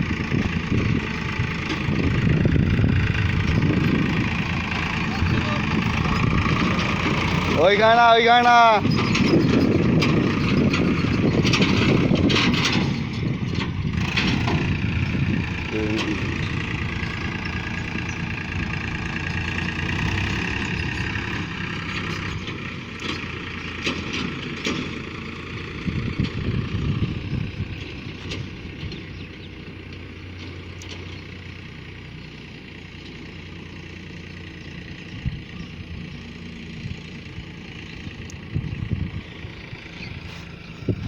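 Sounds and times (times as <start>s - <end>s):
tractor engine humming: 0.0s - 41.0s
short knocks and rattles: 8.5s - 25.0s.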